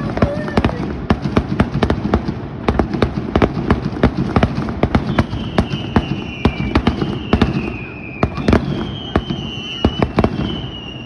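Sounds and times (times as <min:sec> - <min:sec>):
fireworks bangs and pops: 0:00.0 - 0:11.0
high whistling tone: 0:05.1 - 0:11.0.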